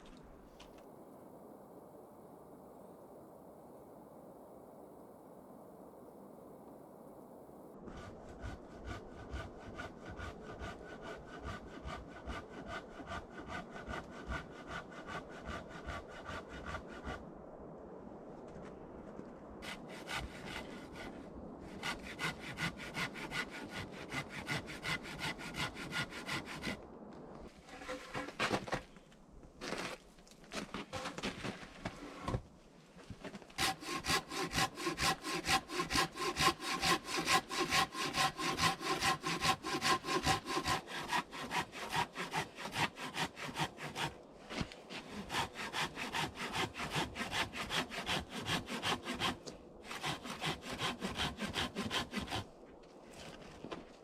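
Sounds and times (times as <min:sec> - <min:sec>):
hand saw cutting a log: 0:07.9 - 0:17.2, 0:19.6 - 0:26.8, 0:33.6 - 0:52.5.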